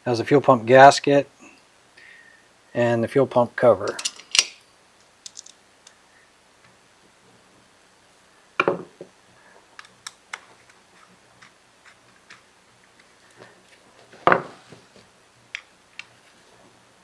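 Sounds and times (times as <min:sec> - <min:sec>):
light clicks of small parts: 0:03.8 - 0:06.0, 0:09.8 - 0:10.8, 0:15.5 - 0:16.3.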